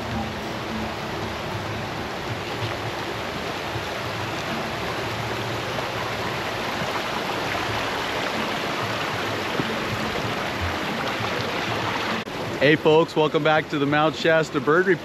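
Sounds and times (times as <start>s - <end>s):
stream water flowing: 0.0s - 15.0s.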